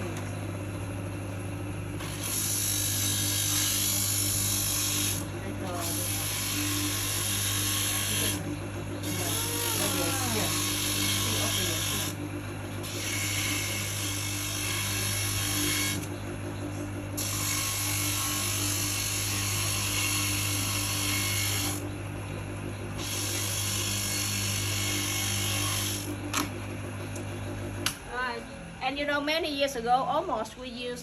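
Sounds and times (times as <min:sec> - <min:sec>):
machine humming: 0:00.0 - 0:29.2
machine grinding: 0:02.0 - 0:27.7.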